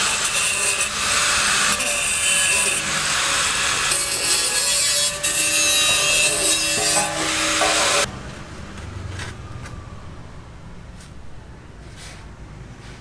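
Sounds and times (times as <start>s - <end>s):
tool grinding material: 0.0s - 8.1s.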